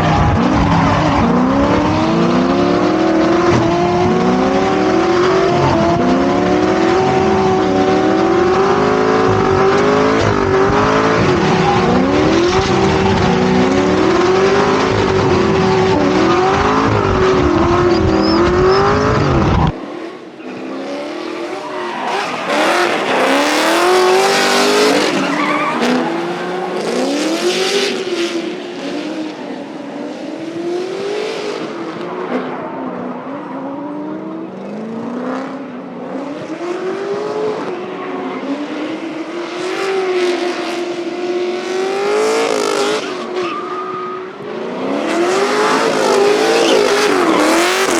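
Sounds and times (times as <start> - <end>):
tires squealing: 0.0 - 29.9, 42.3 - 47.9
car engines revving: 0.0 - 47.9.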